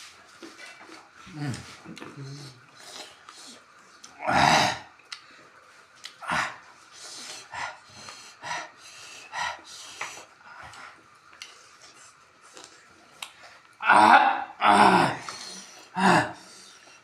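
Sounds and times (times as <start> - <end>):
person panting and hissing air: 6.2 - 12.4, 15.2 - 17.0.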